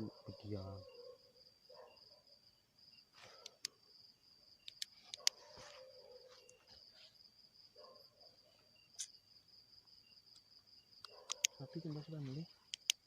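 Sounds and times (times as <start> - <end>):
crickets trilling: 0.0 - 13.0
sharp clicks: 4.6 - 5.4, 10.3 - 11.6, 12.7 - 13.0.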